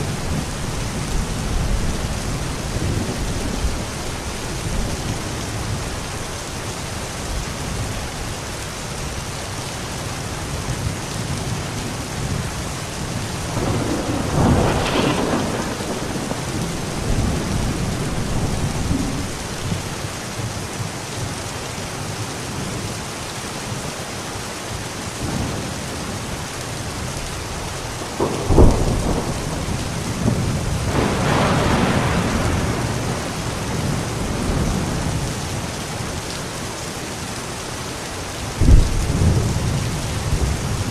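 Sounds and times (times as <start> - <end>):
thunder rumbling: 0.0 - 6.5, 10.8 - 20.0, 25.2 - 36.3, 38.4 - 40.9
steady rain: 0.0 - 40.9.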